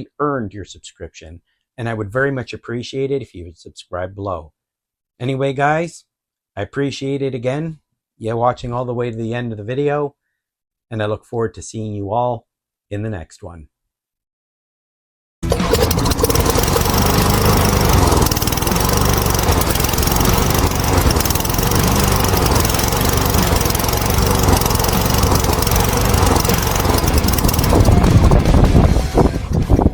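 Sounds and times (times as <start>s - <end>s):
engine running: 15.4s - 29.9s.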